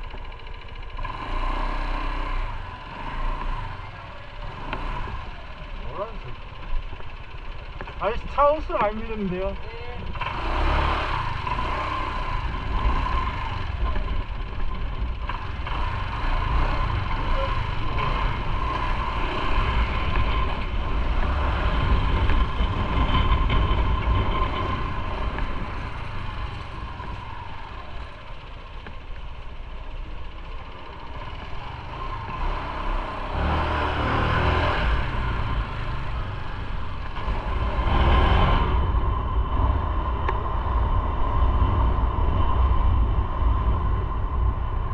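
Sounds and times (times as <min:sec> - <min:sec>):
motorcycle engine rumbling: 0:00.0 - 0:44.9
wind noise: 0:09.6 - 0:27.9, 0:34.1 - 0:44.9.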